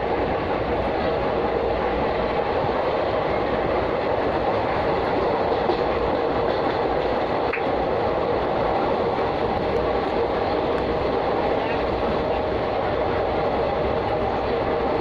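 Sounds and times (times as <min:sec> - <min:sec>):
train running rumble: 0:00.0 - 0:15.0.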